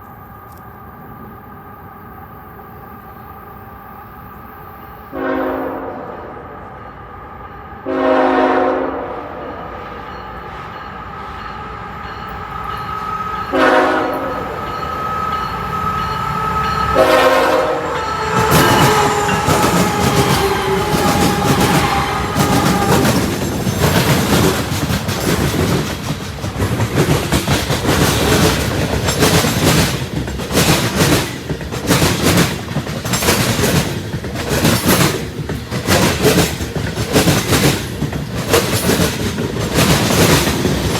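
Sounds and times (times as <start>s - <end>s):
locomotive engines humming: 0.0s - 40.9s
train air horn: 5.1s - 6.6s, 7.8s - 9.7s, 13.5s - 14.8s, 15.8s - 23.4s
train wheels clattering on rails: 9.5s - 40.9s.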